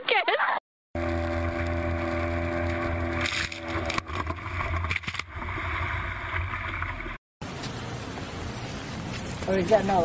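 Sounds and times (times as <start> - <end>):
boat motor humming: 0.9 - 7.2.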